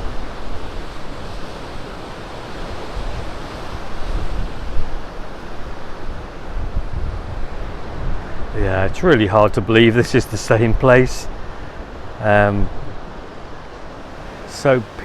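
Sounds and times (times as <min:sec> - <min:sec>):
sea surf washing in: 0:00.0 - 0:15.0
wind buffeting the microphone: 0:00.0 - 0:15.0.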